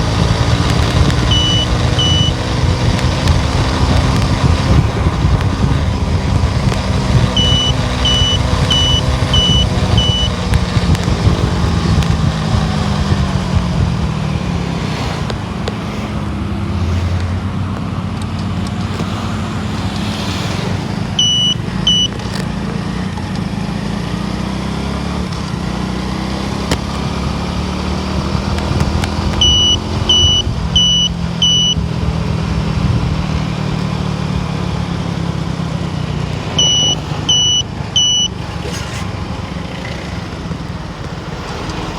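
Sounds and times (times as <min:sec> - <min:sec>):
car engine and road noise: 0:00.0 - 0:41.9
short high beeps: 0:01.2 - 0:02.5, 0:07.3 - 0:10.5, 0:21.2 - 0:22.2, 0:29.4 - 0:31.8, 0:36.6 - 0:38.4.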